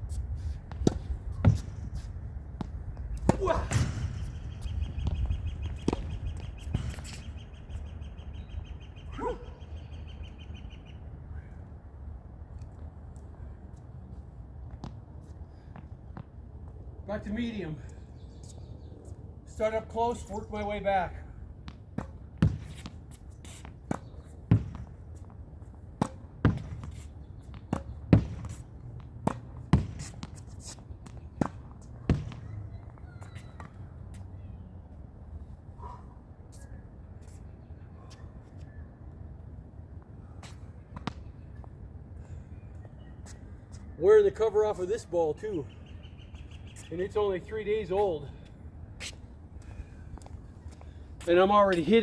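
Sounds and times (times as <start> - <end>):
racket hitting tennis ball: 0.6 - 7.2, 21.7 - 32.9.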